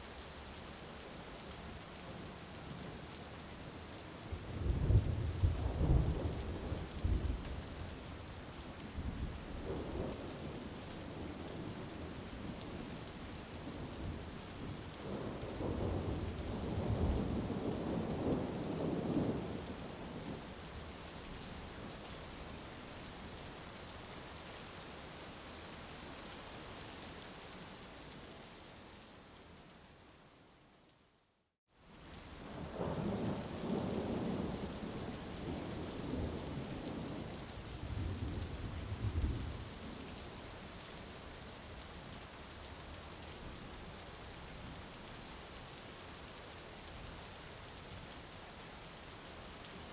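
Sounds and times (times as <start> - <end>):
heavy rain falling: 0.1 - 29.0, 31.9 - 49.9
low roll of thunder: 4.3 - 7.6, 15.0 - 20.4, 32.5 - 39.8
heavy rain hiss: 31.9 - 49.9.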